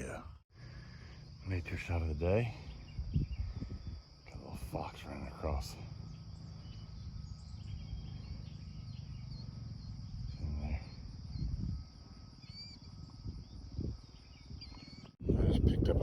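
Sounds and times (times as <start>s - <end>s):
insects droning: 0.0s - 16.0s
wind rumble on microphone: 1.3s - 16.0s
dull low thumps: 6.6s - 12.0s.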